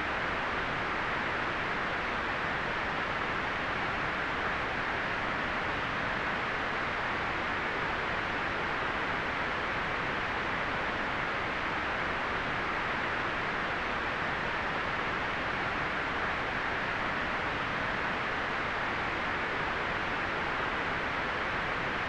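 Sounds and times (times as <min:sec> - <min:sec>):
steady white noise: 0:00.0 - 0:22.0.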